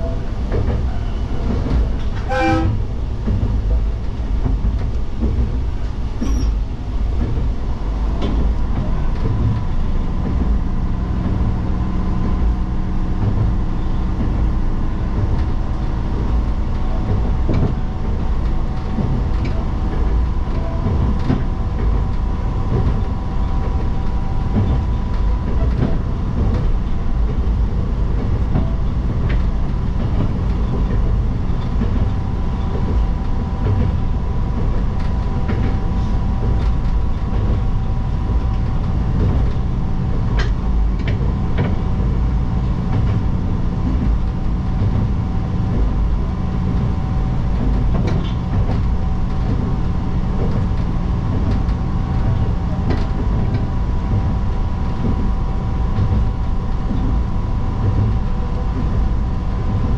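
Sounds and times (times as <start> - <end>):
diesel railcar engine drone: 0.0 - 59.9
wheels clicking over rails: 0.0 - 59.9.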